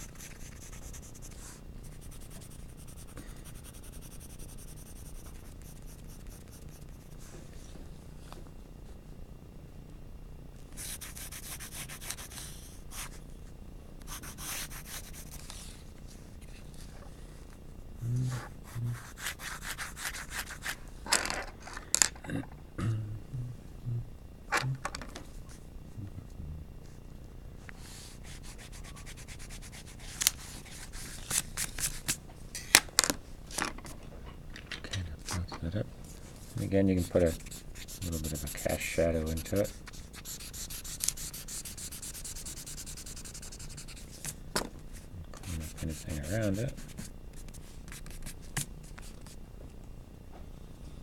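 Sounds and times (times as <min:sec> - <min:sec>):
pencil shading on paper: 0:00.0 - 0:07.2, 0:10.8 - 0:13.1, 0:14.1 - 0:15.4, 0:19.0 - 0:20.7, 0:36.6 - 0:44.0, 0:45.4 - 0:47.1.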